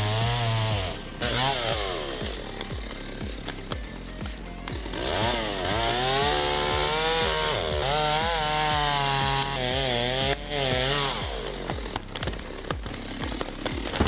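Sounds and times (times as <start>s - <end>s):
background music with beat: 0.0s - 14.0s
chainsaw engine revving: 0.0s - 14.0s.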